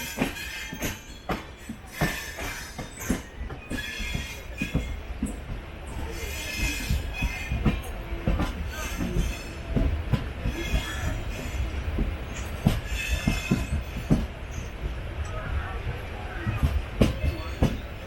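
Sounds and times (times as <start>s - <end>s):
train wheels squealing: 0.0s - 7.8s, 8.7s - 9.7s, 10.4s - 14.9s
train wheels rumbling on rails: 0.0s - 18.0s.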